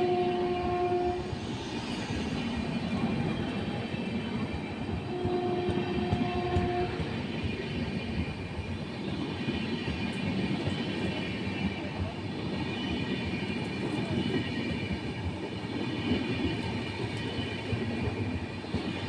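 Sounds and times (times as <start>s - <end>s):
train horn: 0.0s - 1.6s, 5.0s - 7.2s
train rumble and wheel clatter: 0.0s - 19.0s.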